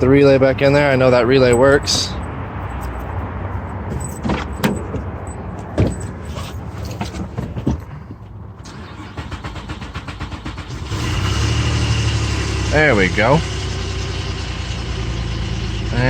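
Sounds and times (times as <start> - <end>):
car starter cranking engine: 8.6 - 16.0.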